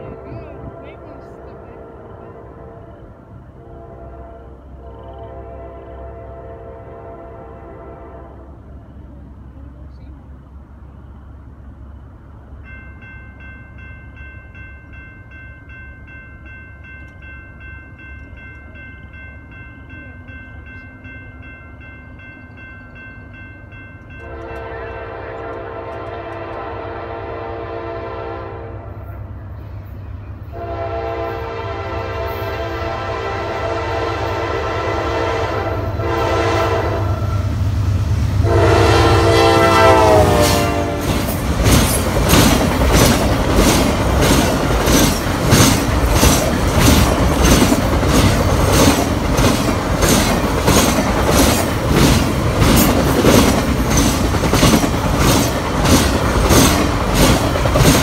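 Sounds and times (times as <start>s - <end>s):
locomotive air horn blasts: 0.0s - 8.6s, 24.1s - 29.3s, 30.5s - 37.5s, 38.4s - 41.3s
train rumble: 0.0s - 58.0s.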